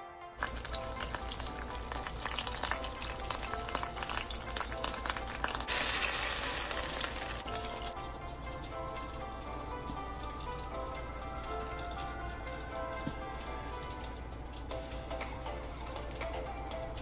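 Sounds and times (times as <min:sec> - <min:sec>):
bread sizzling in a frying pan: 0:00.4 - 0:12.2.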